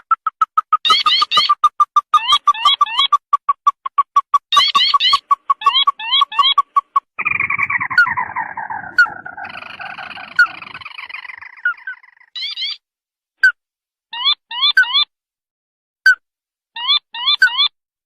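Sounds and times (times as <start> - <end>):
crake calling with chattering trill: 0.0 - 12.8.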